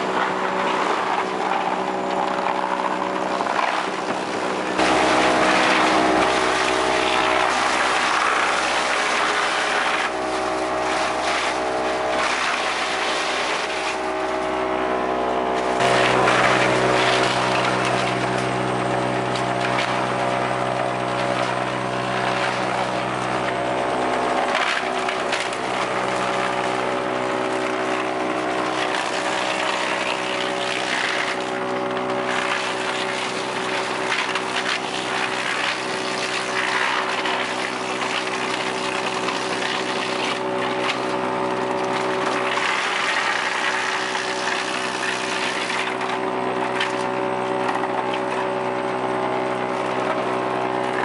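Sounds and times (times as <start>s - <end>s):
engine drone: 0.0s - 51.0s
wood being cut: 0.0s - 51.0s.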